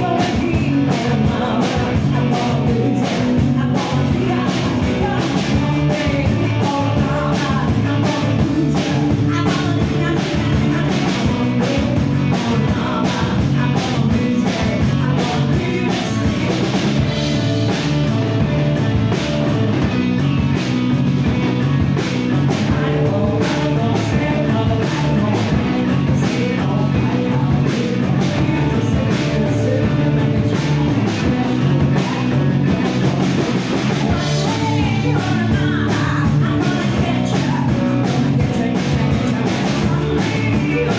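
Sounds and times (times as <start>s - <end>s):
person singing: 0.0s - 17.3s, 22.5s - 40.9s
drum kit: 0.0s - 40.9s
electric guitar: 0.0s - 40.9s.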